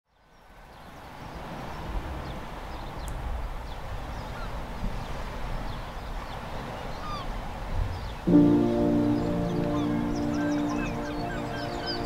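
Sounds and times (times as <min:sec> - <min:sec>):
birds chirping: 0:07.9 - 0:12.0.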